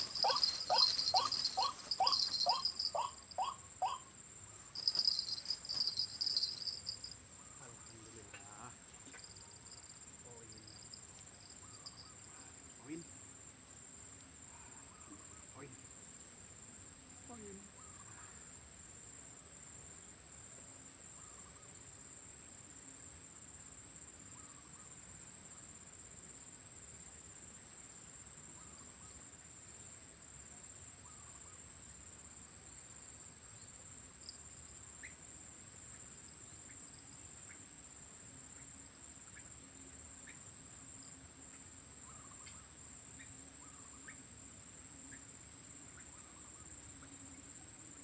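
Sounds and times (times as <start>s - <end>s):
high-pitched insect drone: 0.0s - 4.0s, 4.8s - 7.2s
waterhen calls: 0.0s - 4.0s, 4.8s - 7.0s.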